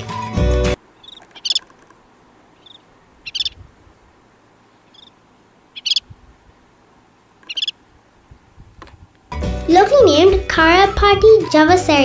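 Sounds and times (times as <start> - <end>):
bird sharp chattering call: 0.9 - 3.7, 4.8 - 6.2, 7.4 - 7.8.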